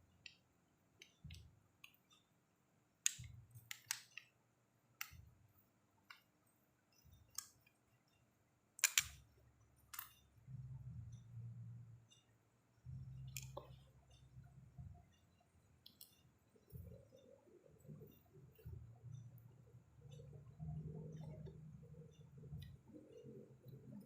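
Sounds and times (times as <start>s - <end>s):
small tools clicking and tapping: 8.8s - 9.2s.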